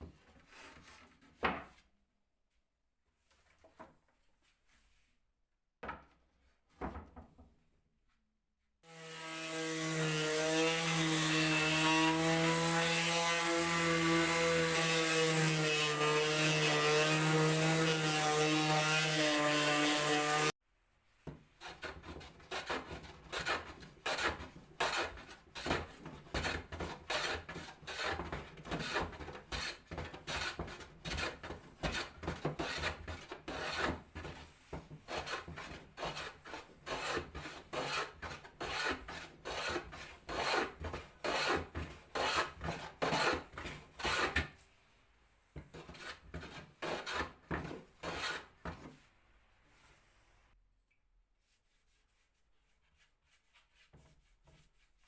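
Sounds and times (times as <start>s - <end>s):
hand tool rasping wood: 21.6s - 44.5s, 45.7s - 48.8s.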